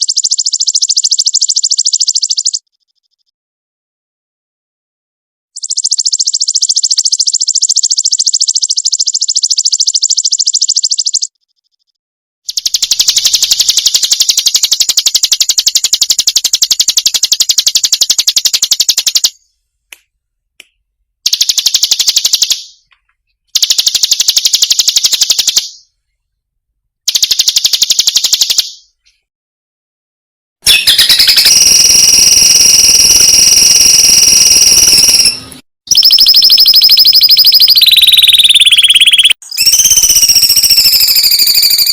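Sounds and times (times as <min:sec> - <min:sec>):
songbird chirping trills: 0:00.0 - 0:03.3, 0:05.6 - 0:12.0
shrill buzzing tone: 0:30.6 - 0:41.9.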